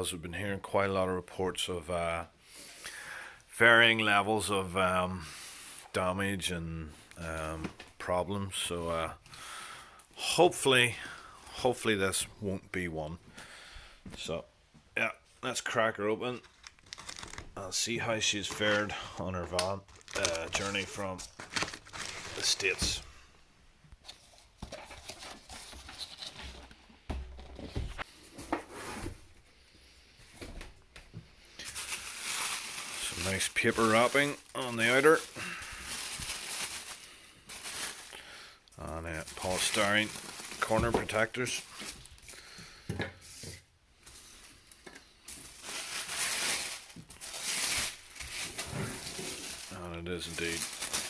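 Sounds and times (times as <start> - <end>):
paper rustling and crinkling: 16.4 - 17.6, 18.3 - 23.1, 24.0 - 29.2, 31.6 - 38.2, 39.1 - 42.5, 44.0 - 51.0.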